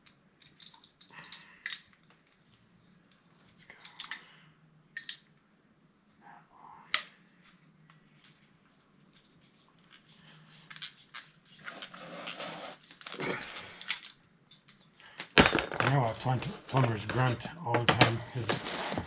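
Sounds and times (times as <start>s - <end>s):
scraping and rustling of parts: 7.2s - 19.0s.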